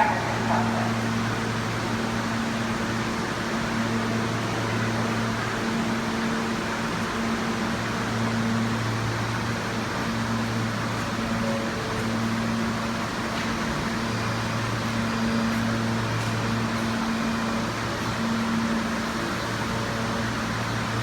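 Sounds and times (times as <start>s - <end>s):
subway train hum and hiss: 0.0s - 21.0s.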